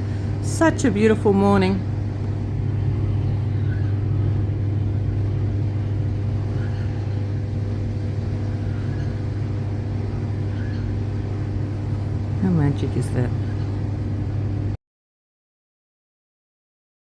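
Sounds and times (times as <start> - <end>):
motor humming: 0.0 - 14.8.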